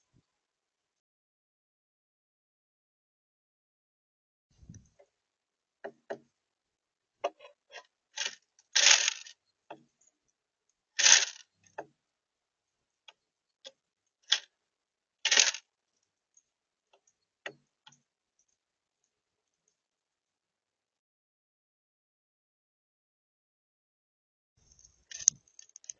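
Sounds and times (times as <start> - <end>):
birds tapping and clicking: 5.8 - 6.3, 7.2 - 10.2, 16.3 - 18.6, 24.6 - 25.9.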